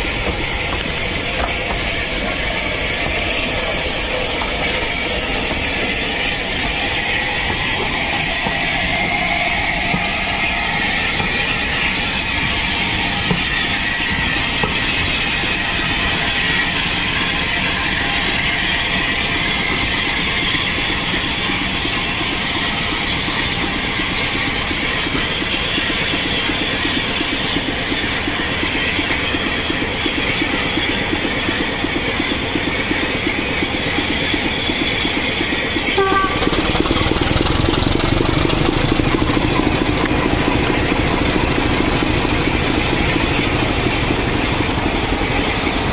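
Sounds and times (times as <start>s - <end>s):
train clattering: 0.0s - 45.9s.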